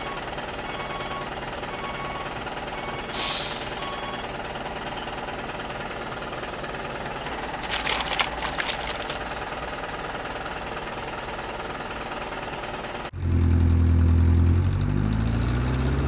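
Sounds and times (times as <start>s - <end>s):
reversing beeper: 0.0s - 5.2s
short loud hiss: 3.2s - 3.7s
clicks and rattles: 7.4s - 9.5s.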